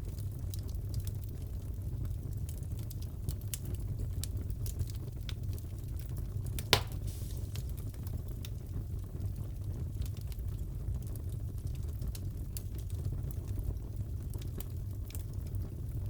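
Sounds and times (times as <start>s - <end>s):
low rumble of fire: 0.0s - 16.0s
fire crackling: 0.5s - 16.0s
loud pop of fire: 6.6s - 8.0s.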